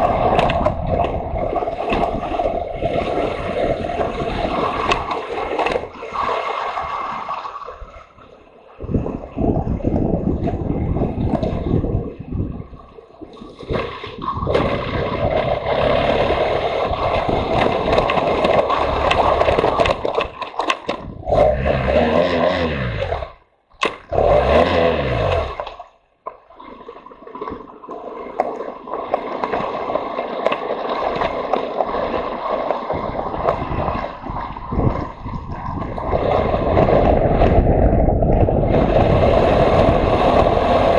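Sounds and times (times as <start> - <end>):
wind buffeting microphone: 0.0 - 23.4, 32.9 - 40.9
motorcycle engine revving: 21.2 - 23.4, 24.1 - 25.6.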